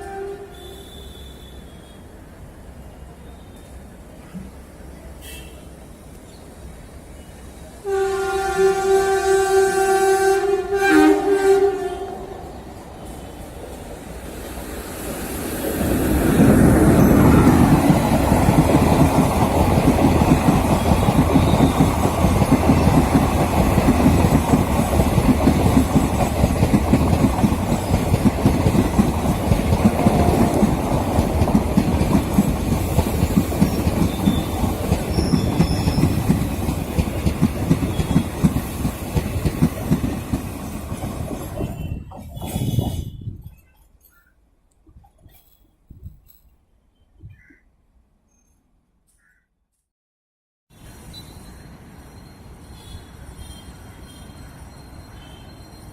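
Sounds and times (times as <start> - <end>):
train wheels clattering on rails: 16.1 - 43.8.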